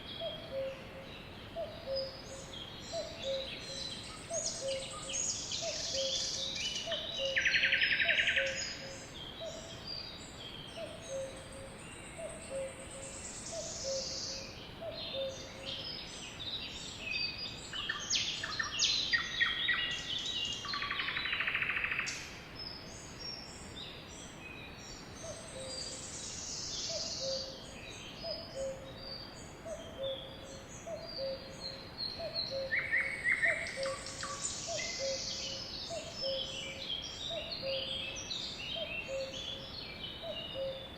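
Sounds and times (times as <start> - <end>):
birds chirping and whistling: 32.1 - 39.6.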